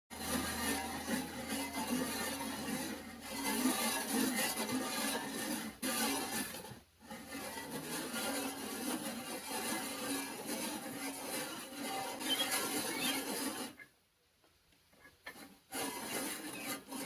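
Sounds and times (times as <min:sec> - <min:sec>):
metal cutting scrape: 0:00.1 - 0:13.9, 0:15.0 - 0:17.0.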